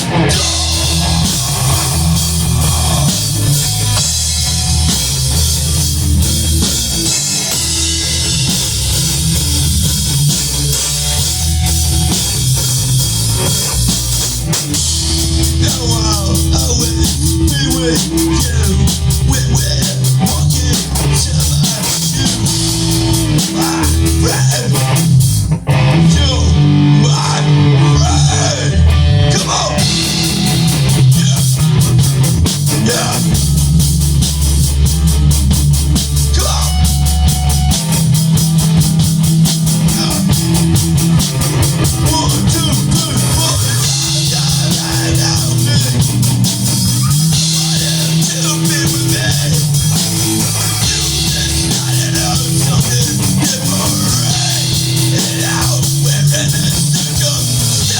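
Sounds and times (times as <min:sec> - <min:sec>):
bass guitar: 0:00.0 - 0:57.9
drums and cymbals: 0:00.0 - 0:57.9
electric guitar with string bends: 0:00.0 - 0:57.9
rock band playing instrumental: 0:00.0 - 0:57.9.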